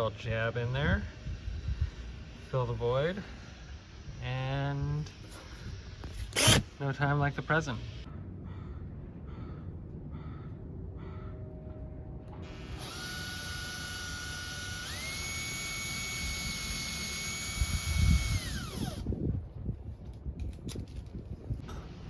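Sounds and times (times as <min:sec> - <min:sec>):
electric drill drilling wood: 0:05.1 - 0:06.7, 0:12.5 - 0:19.1.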